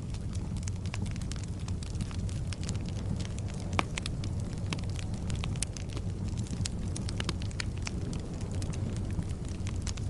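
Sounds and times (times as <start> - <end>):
logs burning in fireplace: 0.0 - 10.0.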